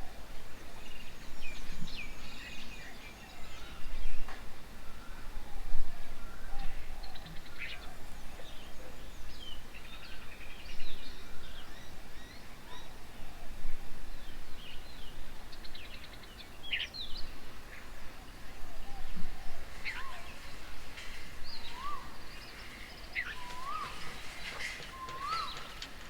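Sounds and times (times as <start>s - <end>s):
birds chirping and trilling: 19.0s - 26.0s.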